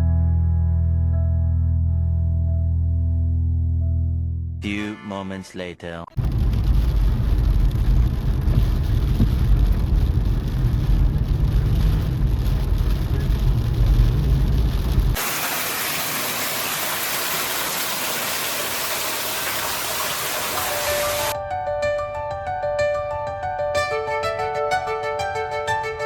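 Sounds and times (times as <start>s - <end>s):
heavy rain hiss: 6.3s - 21.4s.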